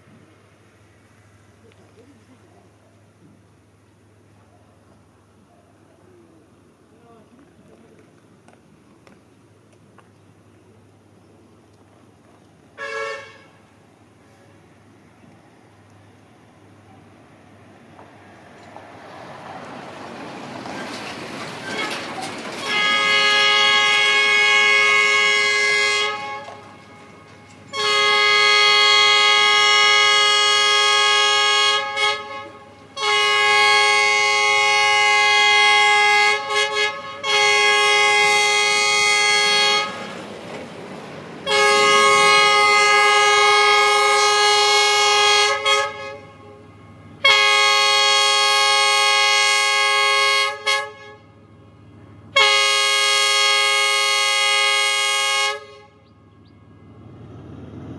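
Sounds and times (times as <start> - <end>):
train horn blasts: 12.8 - 13.7, 21.6 - 40.2, 41.4 - 57.1.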